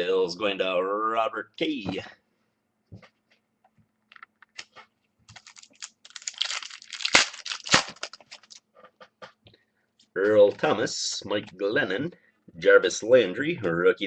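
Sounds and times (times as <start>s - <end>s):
foil wrapper crinkling and tearing: 5.3s - 8.6s.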